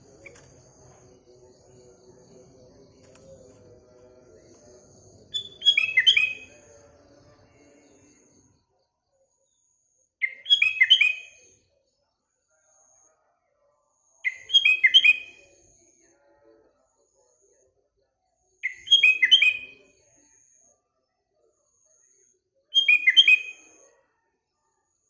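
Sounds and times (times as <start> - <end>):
bird singing downward-sliding notes: 0.0 - 7.0.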